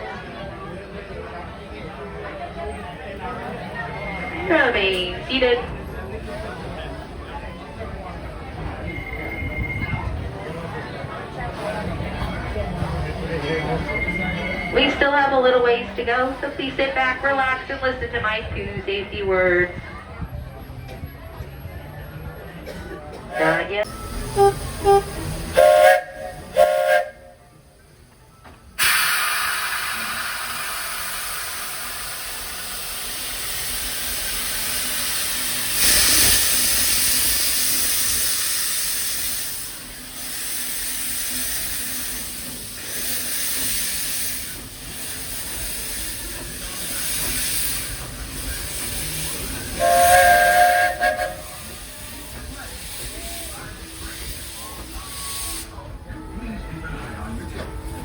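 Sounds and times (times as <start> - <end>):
steam locomotive venting steam: 4.4 - 58.0
steam whistle toots: 23.3 - 27.4, 49.5 - 52.4.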